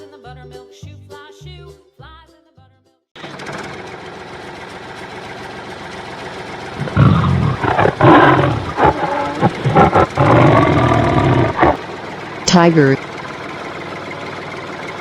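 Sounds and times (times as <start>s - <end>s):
tractor engine running: 3.2s - 15.0s
tiger roaring and growling: 6.8s - 12.0s.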